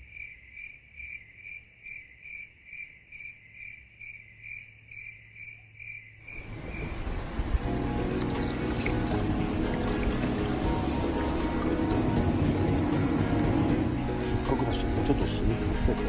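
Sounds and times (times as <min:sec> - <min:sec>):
cricket-like chirping: 0:00.0 - 0:07.2.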